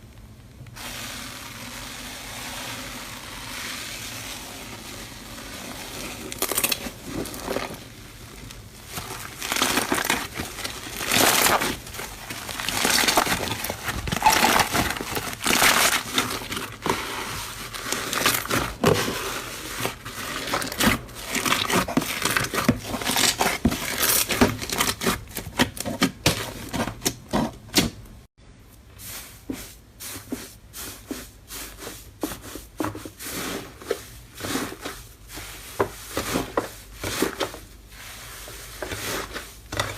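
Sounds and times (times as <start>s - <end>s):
slime crackling and popping: 5.5s - 16.9s.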